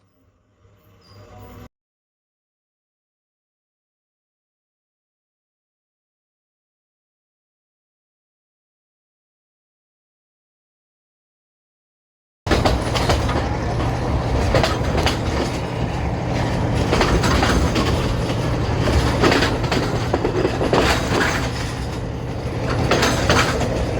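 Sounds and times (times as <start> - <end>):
train engine hum: 12.5 - 23.9
wheels clacking over rail joints: 12.5 - 23.9.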